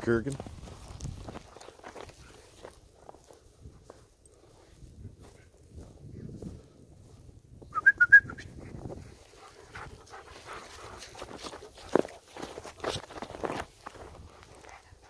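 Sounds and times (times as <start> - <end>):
footsteps crackling: 0.0 - 15.0.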